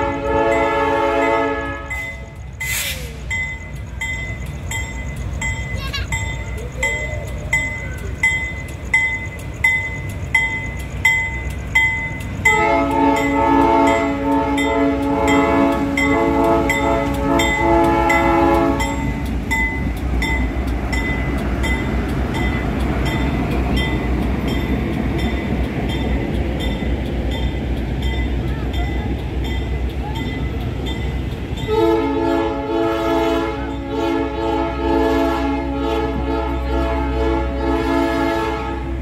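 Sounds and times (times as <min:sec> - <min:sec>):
locomotive air horn chord: 0:00.0 - 0:03.0, 0:12.5 - 0:19.2, 0:31.7 - 0:39.0
train rumbling past: 0:00.0 - 0:39.0
bell ringing: 0:01.9 - 0:12.6.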